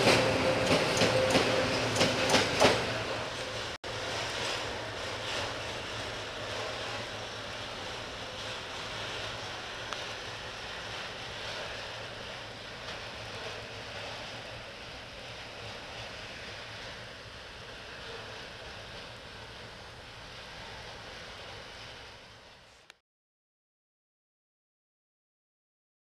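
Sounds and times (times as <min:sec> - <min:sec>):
wheels clacking over rail joints: 0:00.0 - 0:03.8
distant train rumble: 0:00.0 - 0:23.0
freight train passing: 0:00.0 - 0:23.0.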